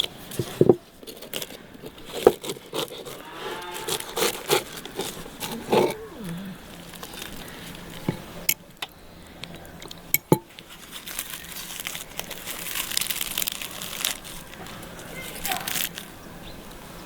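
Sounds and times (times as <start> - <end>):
crinkly handling rustle: 0.0 - 17.0.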